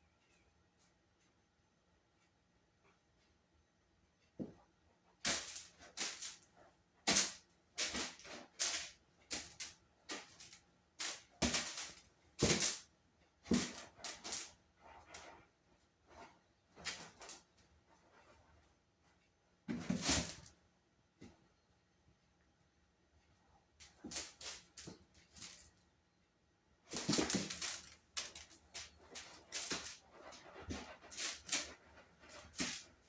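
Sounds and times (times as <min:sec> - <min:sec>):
kittens scuffling and scratching: 0:05.2 - 0:18.8, 0:19.7 - 0:20.6, 0:23.8 - 0:25.8, 0:26.9 - 0:33.0.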